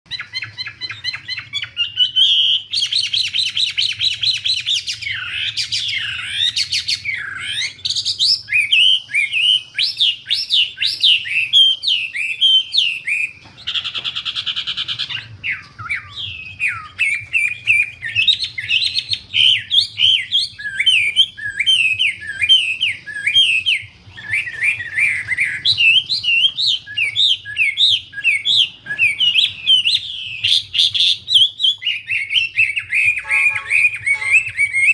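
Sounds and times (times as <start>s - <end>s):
songbird singing: 0.1s - 34.9s
harsh buzzy bird note: 33.0s - 34.9s.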